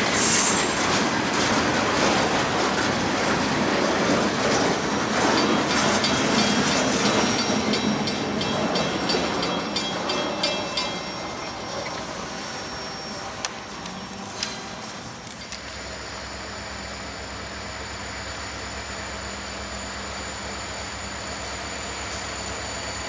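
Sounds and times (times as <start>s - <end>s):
freight train rumble: 0.0s - 23.0s.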